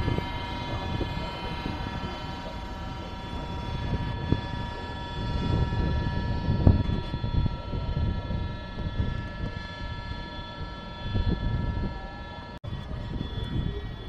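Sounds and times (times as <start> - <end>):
electric train whining tones: 0.0 - 14.0
train rumble: 0.0 - 14.0.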